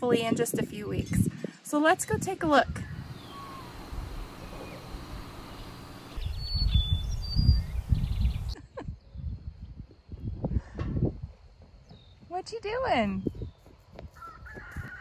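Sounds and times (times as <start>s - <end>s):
songbird chirping: 2.9s - 9.4s, 11.8s - 14.0s
irregular low rumble: 3.0s - 8.6s.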